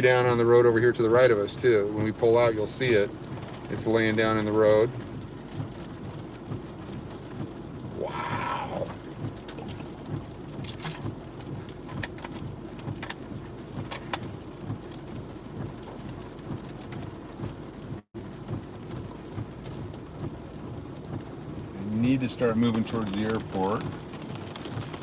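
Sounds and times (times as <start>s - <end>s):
heavy rain drumming on car roof: 0.0s - 25.0s.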